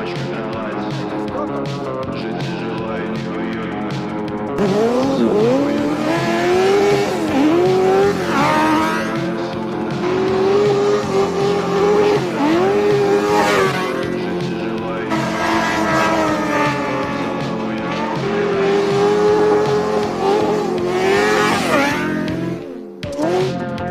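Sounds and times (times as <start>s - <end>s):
background music: 0.0s - 23.9s
motorbike engine accelerating: 0.0s - 23.9s.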